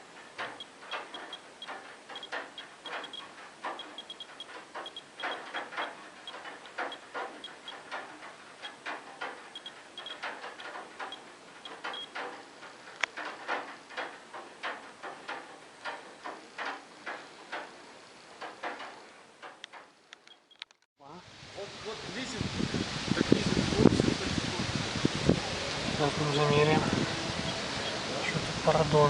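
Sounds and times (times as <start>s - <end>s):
dosimeter high-pitched beeps: 2.9s - 3.2s, 3.8s - 5.4s, 9.6s - 10.2s.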